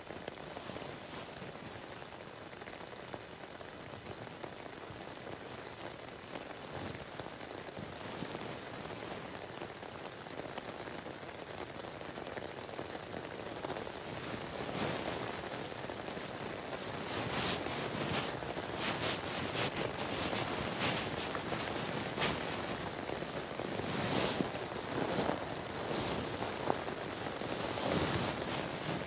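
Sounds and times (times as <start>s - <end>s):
light rain patter: 0.0s - 29.0s
loud rustles: 14.0s - 29.0s.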